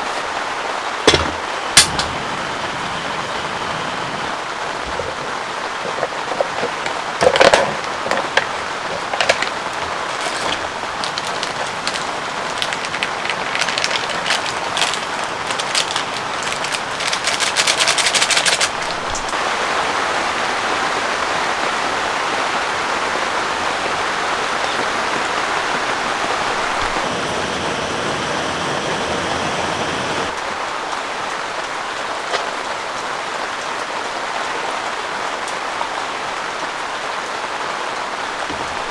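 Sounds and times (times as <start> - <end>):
heavy rain falling: 0.0 - 38.9
loud raindrops striking close: 0.8 - 31.7.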